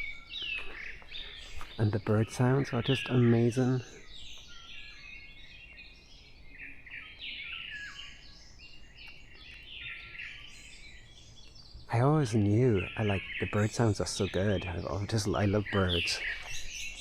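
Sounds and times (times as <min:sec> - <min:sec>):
songbirds singing: 0:00.0 - 0:17.0.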